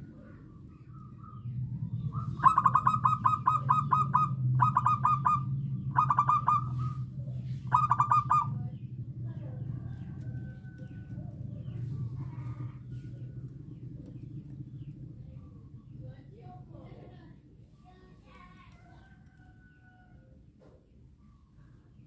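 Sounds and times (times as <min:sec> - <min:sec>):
dove staccato cooing song: 0:00.0 - 0:16.0.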